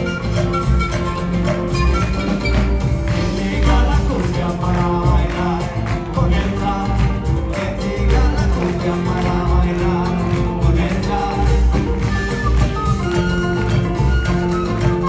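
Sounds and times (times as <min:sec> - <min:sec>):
live band music: 0:00.0 - 0:15.0
person singing: 0:03.1 - 0:13.4.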